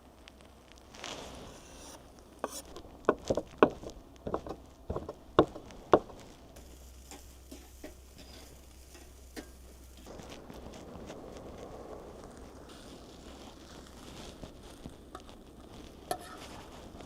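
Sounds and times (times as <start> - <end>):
rice frying: 0.0 - 17.0
utensil scraping a pan: 1.1 - 11.2, 15.2 - 17.0.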